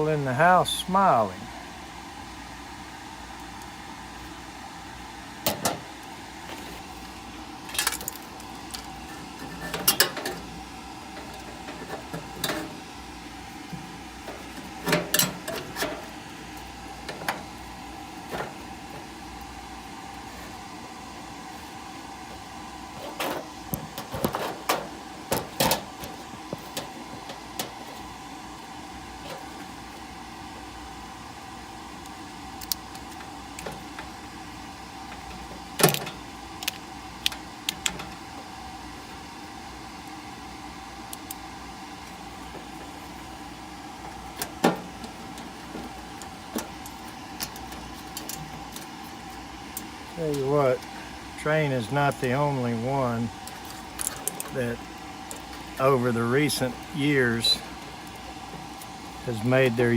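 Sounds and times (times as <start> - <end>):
steady hum: 0.0 - 59.9
hand tools clicking and clattering: 7.7 - 10.5, 11.2 - 12.8, 14.3 - 16.1, 23.0 - 27.9, 44.0 - 48.9.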